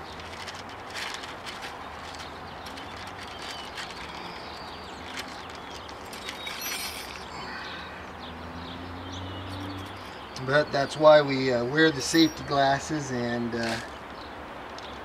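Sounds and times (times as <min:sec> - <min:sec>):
handling clicks and knocks: 0:00.0 - 0:07.3
faint bird chirps: 0:02.5 - 0:10.4.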